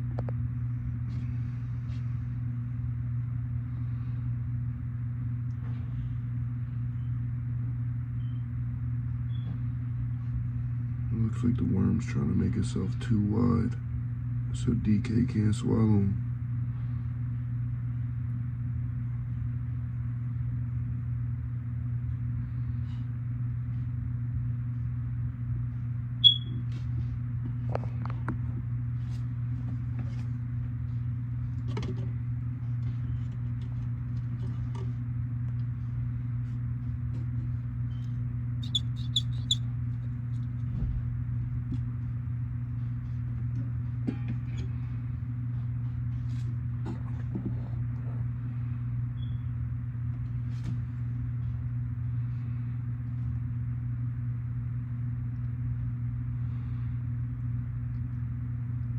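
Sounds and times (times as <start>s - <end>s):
steady low hum: 0.0s - 58.9s
quick high chirps: 26.2s - 26.5s, 38.6s - 39.6s.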